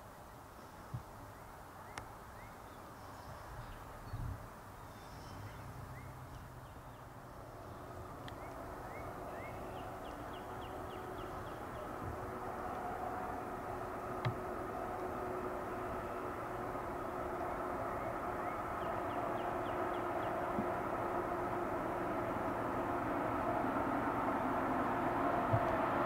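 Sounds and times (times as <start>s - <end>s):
birds chirping and trilling: 4.8s - 12.0s
distant diesel train rumbling: 4.8s - 26.0s.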